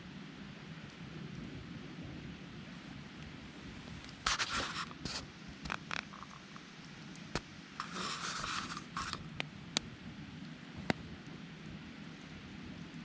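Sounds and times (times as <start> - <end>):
campfire crackling: 0.0 - 13.0
fire popping: 0.6 - 13.0
rustling scrape: 3.7 - 6.4, 7.8 - 9.3.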